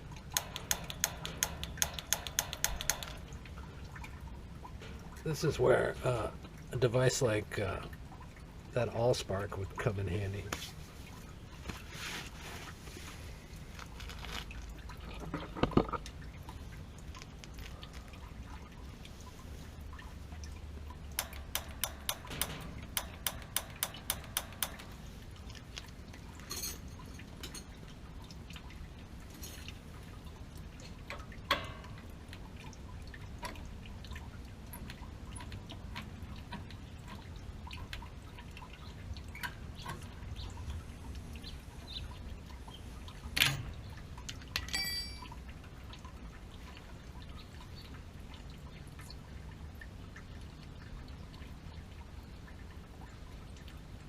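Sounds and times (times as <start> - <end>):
pilot igniter clicking: 0.3 - 3.2
small ticks: 0.3 - 3.4.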